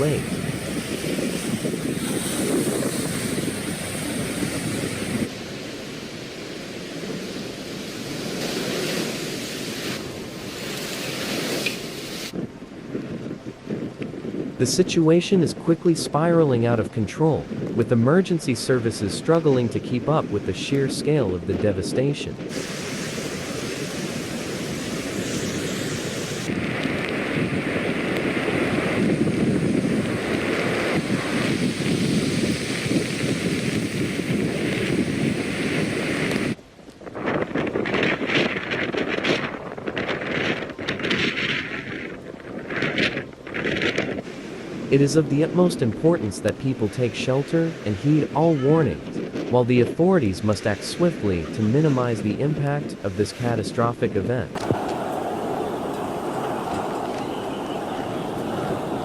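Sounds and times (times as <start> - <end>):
rushing floodwater: 0.0 - 12.4, 54.5 - 59.0
wind buffeting microphone: 0.0 - 59.0.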